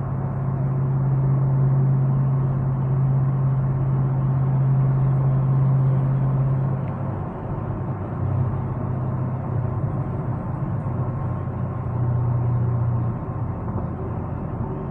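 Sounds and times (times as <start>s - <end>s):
car engine drone: 0.0s - 14.9s
road rumble: 0.0s - 14.9s.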